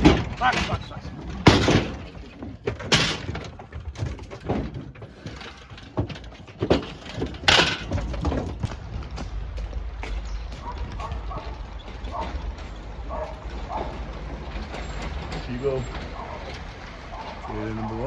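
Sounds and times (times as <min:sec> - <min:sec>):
knocks and clattering in trailer: 0:00.0 - 0:18.0.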